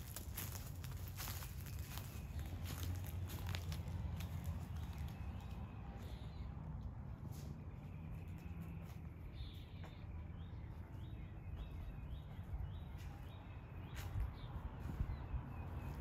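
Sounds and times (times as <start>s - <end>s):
bird chirping: 4.2s - 16.0s.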